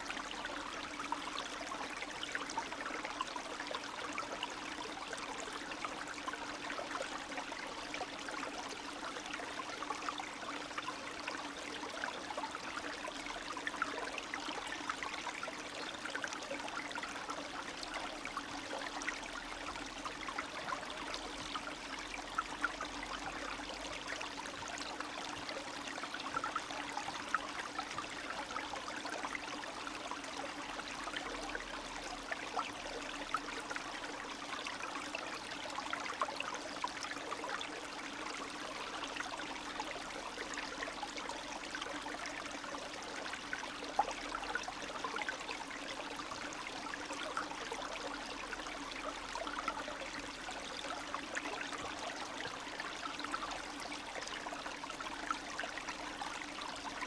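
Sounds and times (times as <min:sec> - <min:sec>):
stream trickling over stones: 0:00.0 - 0:57.0.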